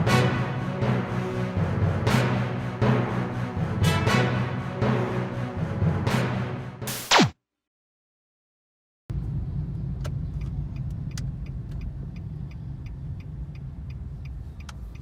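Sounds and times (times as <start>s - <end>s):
low engine rumble: 9.1s - 15.0s.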